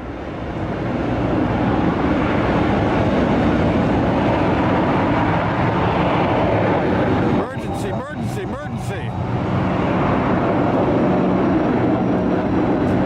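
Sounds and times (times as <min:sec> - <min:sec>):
jet airliner engines rumbling: 0:00.0 - 0:13.0.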